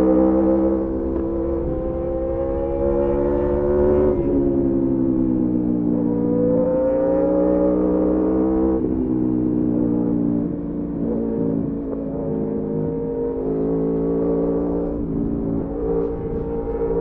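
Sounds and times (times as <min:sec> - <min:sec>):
motorcycle engine running: 0:07.6 - 0:17.0.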